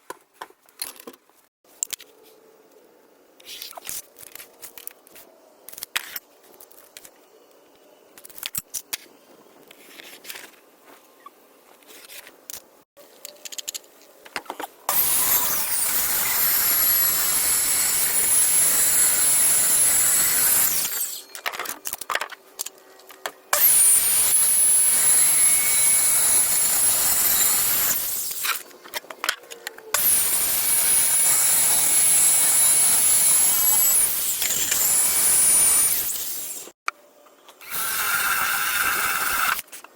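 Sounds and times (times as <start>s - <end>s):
handling knocks and clicks: 0.0s - 2.1s
power tool whine: 37.6s - 39.6s.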